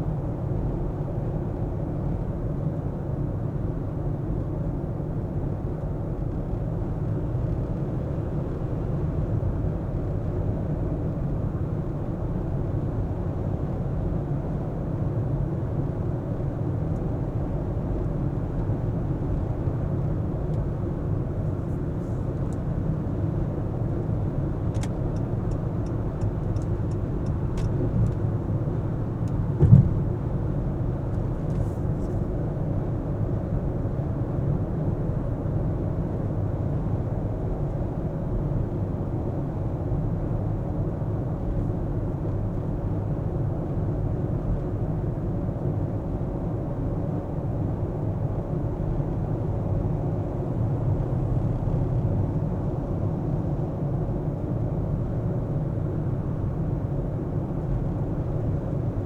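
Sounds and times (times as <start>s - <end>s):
car engine and tyre rumble: 0.0s - 59.0s
single thump: 29.6s - 30.1s.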